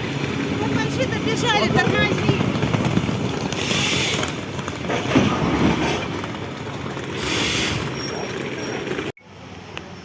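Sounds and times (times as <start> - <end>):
train rumbling on rails: 0.0 - 10.0
hissing bursts: 3.5 - 4.4, 7.2 - 8.0.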